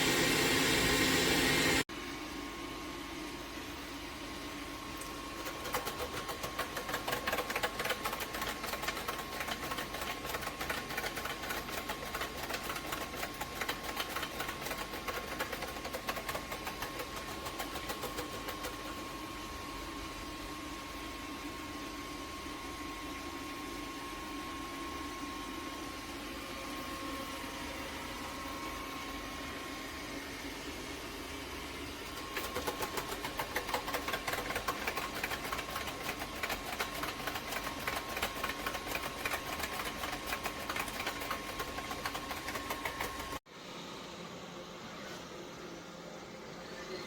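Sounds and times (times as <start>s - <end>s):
rapid pulsing rattle: 5.4s - 19.0s, 32.1s - 43.4s.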